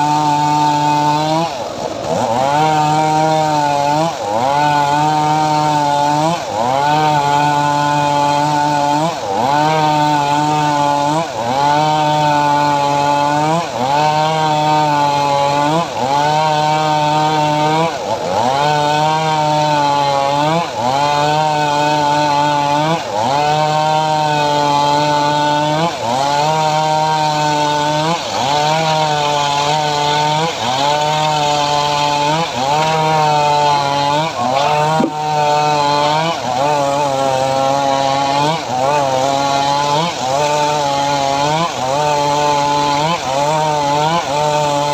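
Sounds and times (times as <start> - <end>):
saw engine running under load: 0.0 - 44.9
saw blade biting into wood: 25.8 - 40.7.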